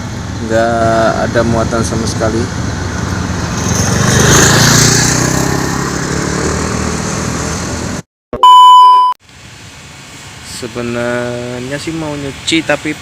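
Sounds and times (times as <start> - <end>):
vehicle engine passing by: 0.0 - 8.0.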